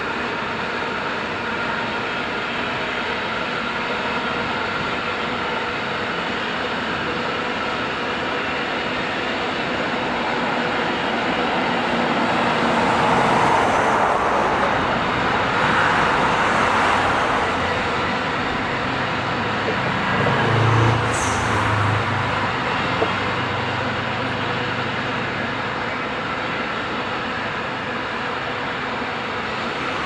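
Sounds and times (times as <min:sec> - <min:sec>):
train rumbling past: 0:00.3 - 0:30.0
high squeal: 0:10.0 - 0:26.0.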